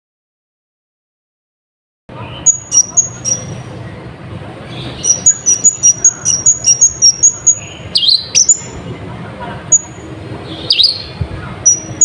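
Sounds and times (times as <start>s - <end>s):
steady low hum: 2.1s - 12.0s
sunbird chirping: 2.2s - 3.8s, 4.7s - 8.8s, 9.6s - 12.0s.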